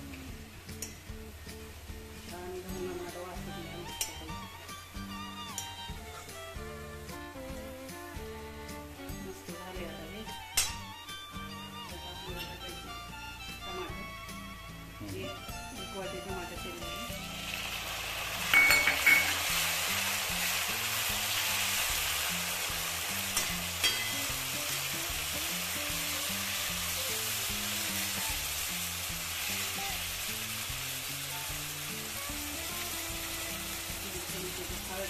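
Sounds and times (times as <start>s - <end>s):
onions sizzling in hot oil: 0.0s - 35.0s
metal spoon clinking against pan: 18.5s - 19.5s, 23.4s - 24.3s.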